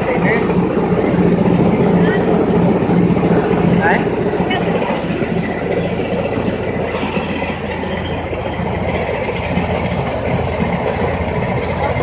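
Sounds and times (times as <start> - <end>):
rattling milling machine: 0.0 - 12.0
tractor engine hum: 0.0 - 12.0.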